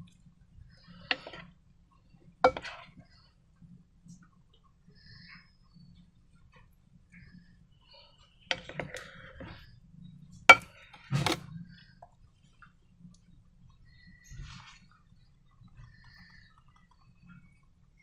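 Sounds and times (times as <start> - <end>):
hard objects clicking and tapping: 2.4 - 2.9, 8.5 - 9.6, 10.3 - 12.2.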